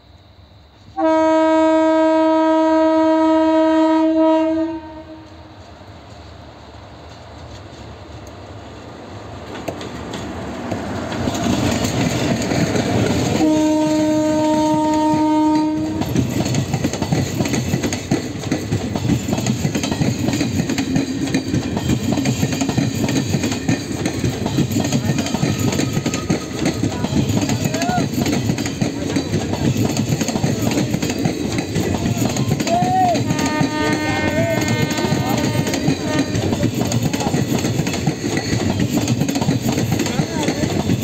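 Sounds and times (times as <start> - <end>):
train approaching: 0.0 - 41.0
train horn blast: 0.9 - 5.6, 13.3 - 16.2, 33.1 - 36.6
wheels clickety-clack over rails: 7.0 - 8.5, 9.4 - 41.0.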